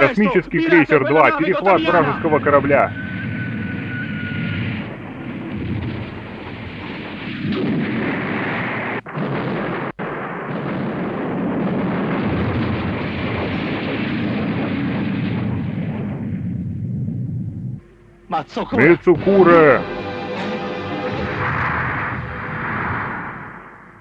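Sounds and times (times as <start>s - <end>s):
explosions and weapons fire: 0.0s - 17.4s.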